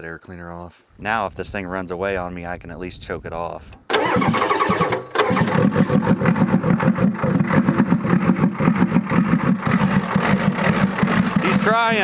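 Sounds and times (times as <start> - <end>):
diesel engine cranking: 3.7 - 12.0.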